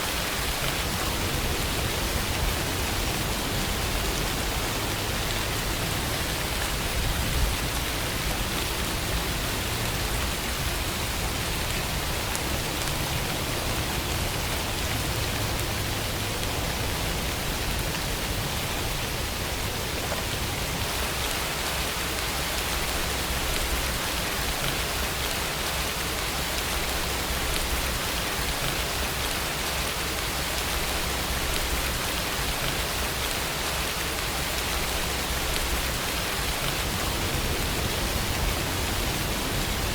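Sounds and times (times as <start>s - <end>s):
raindrop patter: 0.0s - 39.9s
steady rain hiss: 0.0s - 39.9s.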